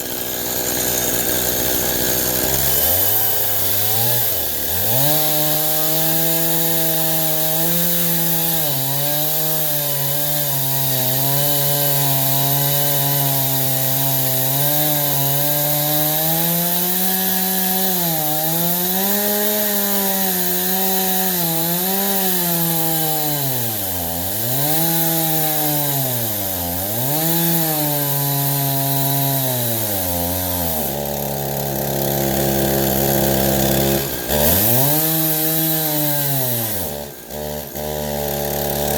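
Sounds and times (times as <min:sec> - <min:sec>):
chainsaw ripping a log: 0:00.0 - 0:38.9.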